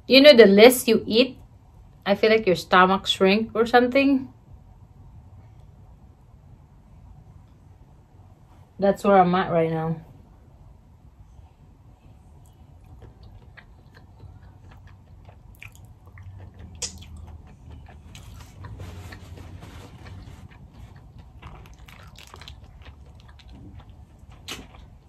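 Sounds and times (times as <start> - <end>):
person chewing with wet mouth sounds: 12.0 - 25.0.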